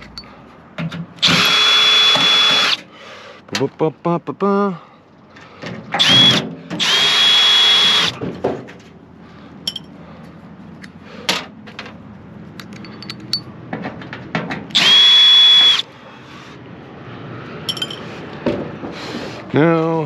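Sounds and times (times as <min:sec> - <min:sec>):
power drill spinning: 0:01.2 - 0:02.8, 0:06.0 - 0:08.1, 0:14.8 - 0:15.8
metal parts clicking and tapping: 0:09.6 - 0:10.0, 0:12.6 - 0:14.7, 0:17.7 - 0:18.1.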